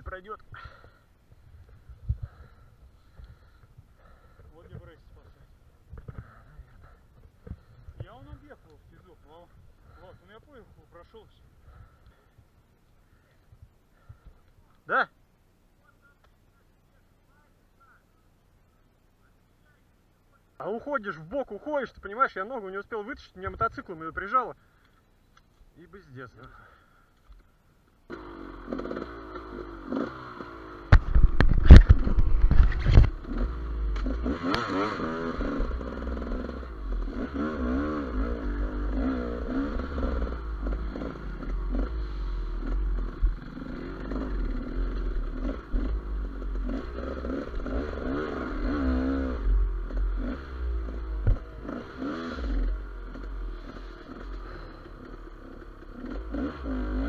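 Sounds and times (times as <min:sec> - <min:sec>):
motorcycle engine revving: 0:28.1 - 0:57.0.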